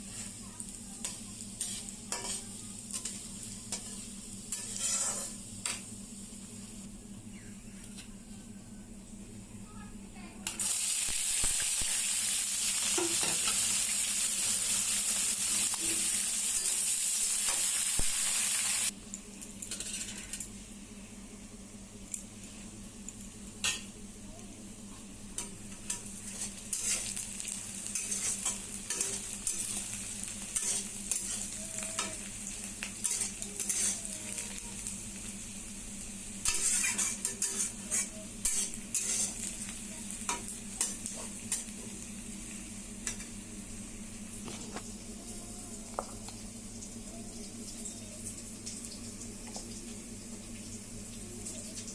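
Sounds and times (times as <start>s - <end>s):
food sizzling in pan: 0.0s - 6.9s, 10.4s - 19.0s, 24.8s - 51.9s
spoon scraping pan: 4.5s - 5.4s, 36.4s - 39.5s.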